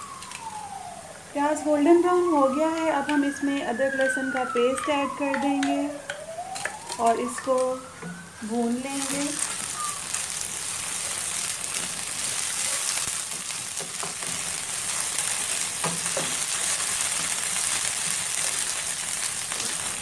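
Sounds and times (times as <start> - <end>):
onions sizzling in hot oil: 0.0 - 20.0.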